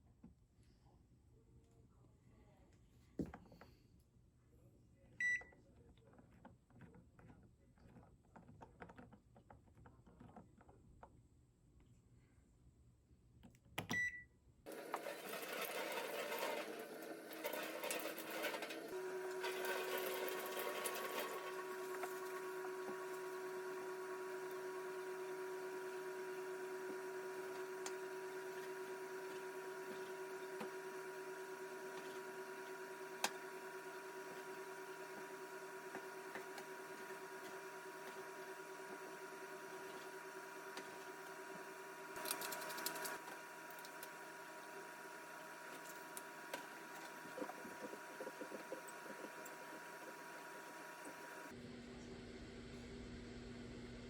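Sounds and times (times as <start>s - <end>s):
appliance beeps: 5.2s - 5.6s, 13.8s - 43.2s
appliance motor humming: 14.7s - 54.0s.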